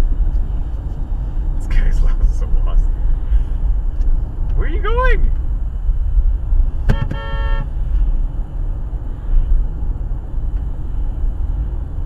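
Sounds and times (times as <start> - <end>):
car road and engine rumble: 0.0 - 12.0
car horn honk: 6.8 - 7.7.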